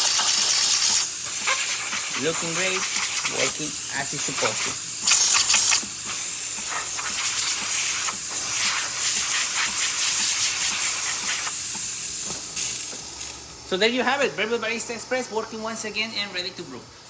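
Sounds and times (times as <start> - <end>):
water pump pulsing: 0.0 - 11.6
steam wand hissing: 0.0 - 17.0.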